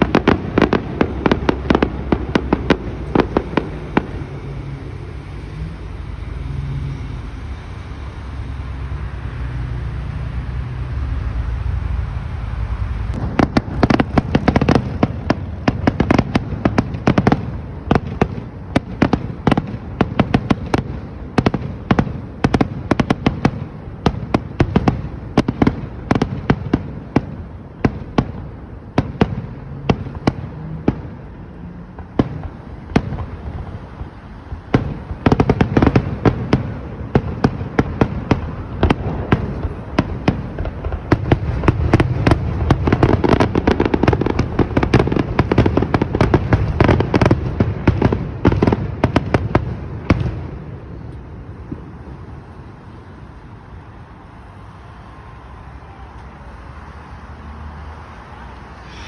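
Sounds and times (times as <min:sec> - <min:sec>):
deep fireworks booms: 0:00.0 - 0:52.5
fireworks bangs and crackles: 0:00.0 - 0:57.6.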